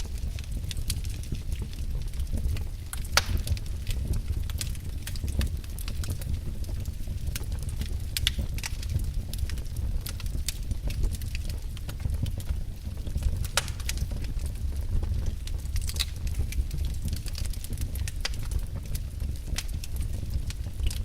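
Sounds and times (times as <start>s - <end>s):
burning wood crackling and popping: 0.0s - 21.0s
low rumble of flames: 0.0s - 21.0s.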